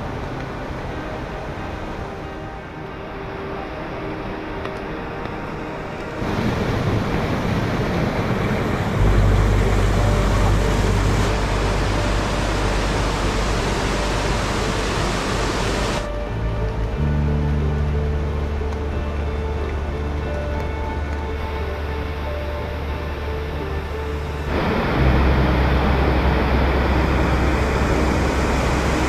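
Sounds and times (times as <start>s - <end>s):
soft background music: 0.0s - 29.0s
stream rushing over rocks: 0.0s - 29.0s
deep rumble: 6.1s - 29.0s.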